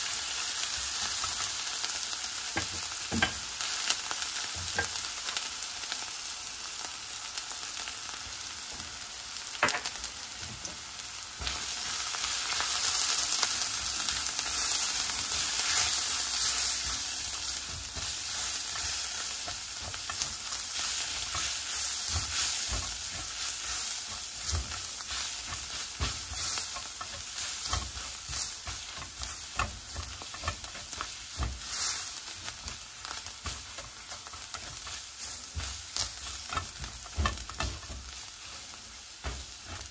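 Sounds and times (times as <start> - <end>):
onions sizzling in hot oil: 0.0 - 39.9
spatula scraping a pan: 13.8 - 39.9.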